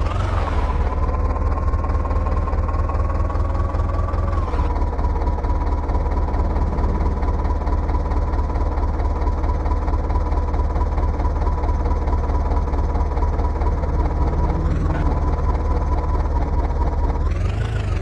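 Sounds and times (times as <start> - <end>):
heavy diesel engine running: 0.0 - 18.0
high whine: 4.4 - 9.0.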